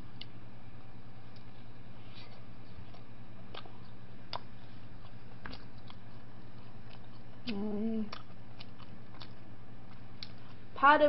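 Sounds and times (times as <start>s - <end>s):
steady low hum: 0.0s - 11.0s
person chewing food: 0.1s - 10.7s
wet mouth clicks: 6.9s - 10.4s
person humming: 7.4s - 8.2s.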